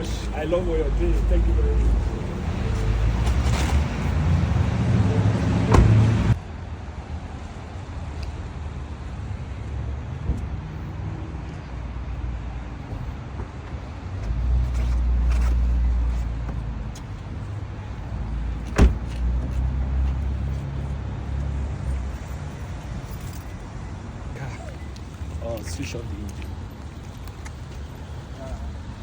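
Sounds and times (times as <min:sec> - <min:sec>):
car engine and road rumble: 0:00.0 - 0:29.0
sharp thump: 0:05.7 - 0:06.1, 0:18.7 - 0:19.1.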